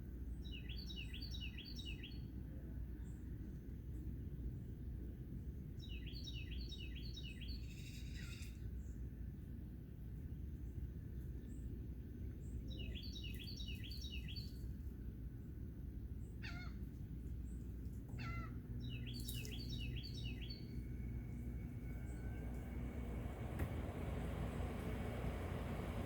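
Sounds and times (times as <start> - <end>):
low background rumble: 7.4 - 26.0
birds chirping: 12.4 - 14.6, 17.4 - 26.0.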